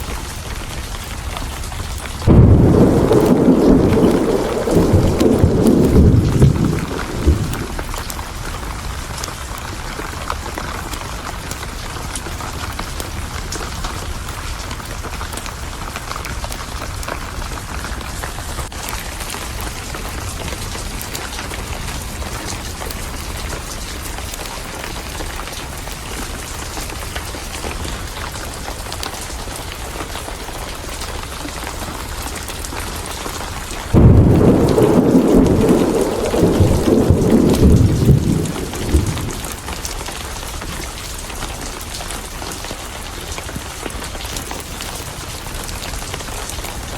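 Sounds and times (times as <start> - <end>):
heavy rain: 0.0 - 46.9
deep thunder rumble: 2.2 - 8.5, 33.8 - 40.3.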